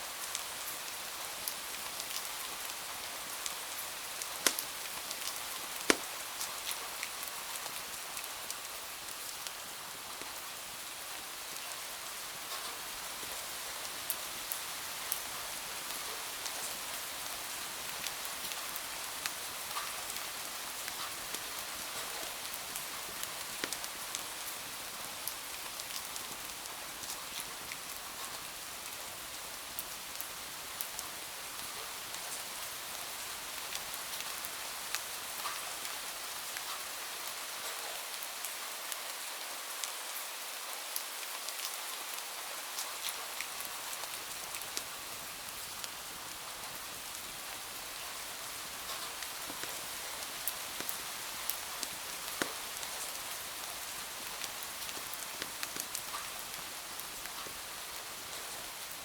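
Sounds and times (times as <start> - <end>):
rain on window glass: 3.4 - 8.6, 43.2 - 58.8
wood fire crackling: 3.7 - 6.8, 20.8 - 27.7, 43.6 - 58.6.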